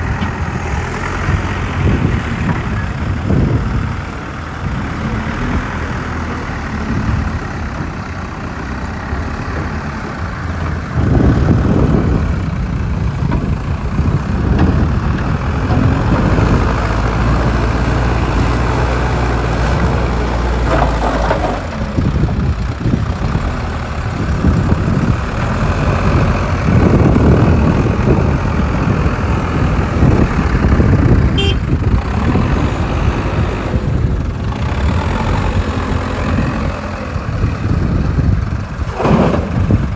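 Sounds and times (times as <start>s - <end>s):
digger diesel engine revving: 0.0s - 39.9s.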